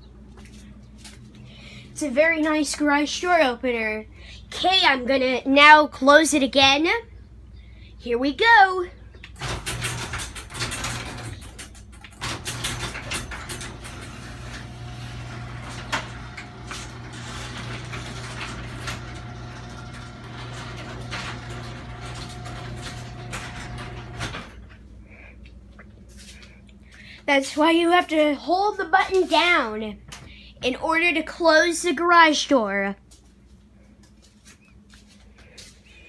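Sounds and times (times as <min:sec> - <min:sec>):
garage door opener motor hum: 0:09.2 - 0:25.0.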